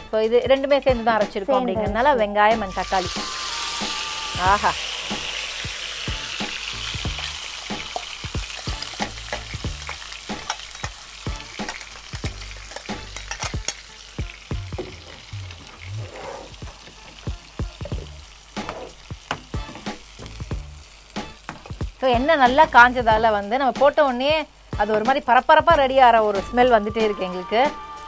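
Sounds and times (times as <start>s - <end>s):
paste sizzling in oil: 2.6s - 27.9s
oil popping: 2.7s - 22.7s.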